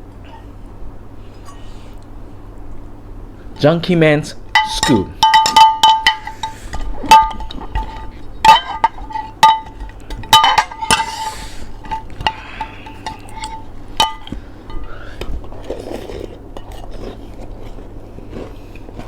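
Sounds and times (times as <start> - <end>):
spoon clinking against dish: 4.6 - 14.9.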